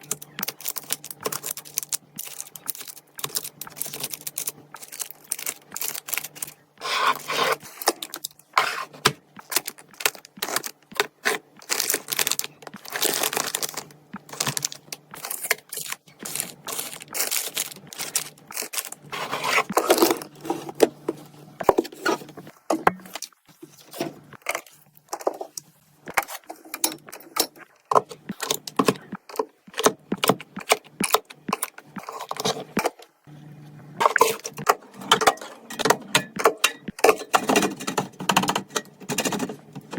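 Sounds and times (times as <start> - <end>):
packaging rustling: 0.0 - 21.0
containers clicking and clinking: 0.0 - 33.1, 34.0 - 39.9.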